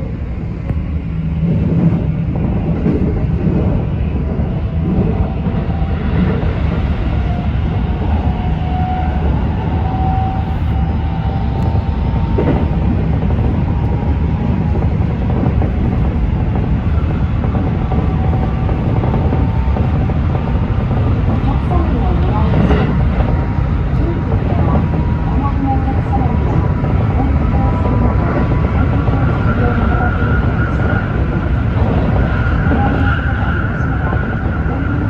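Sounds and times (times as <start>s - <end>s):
wheels rumbling on rail: 0.0s - 35.0s.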